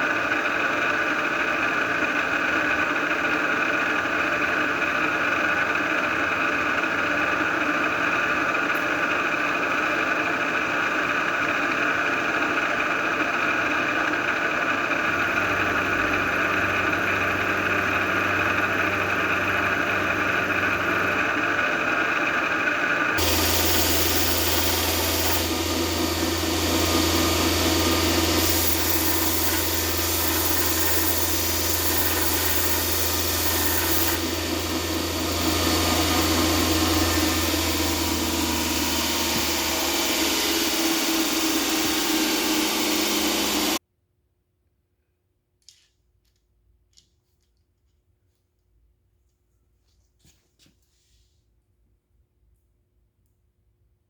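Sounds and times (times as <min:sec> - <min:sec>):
machine drone with held tones: 0:14.9 - 0:43.8
low hum: 0:15.1 - 0:43.8
steady hiss: 0:23.2 - 0:43.8.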